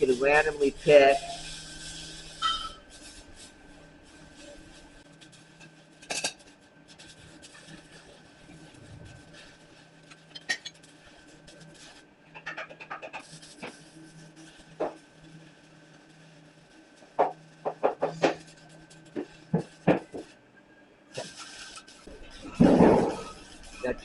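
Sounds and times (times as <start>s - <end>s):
metal clinks and scrapes: 2.3s - 3.0s.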